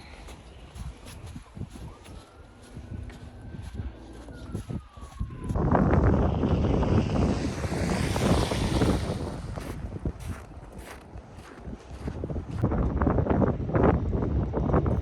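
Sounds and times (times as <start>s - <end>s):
falling siren-like tone: 0.0s - 10.3s
vehicle passing on snowy road: 0.0s - 12.6s.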